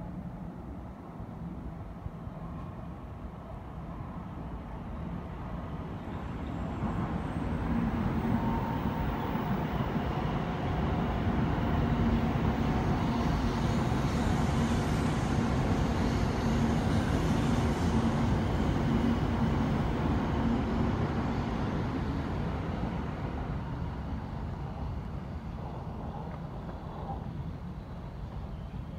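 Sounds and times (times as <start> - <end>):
high-speed train passing: 0.0 - 28.9.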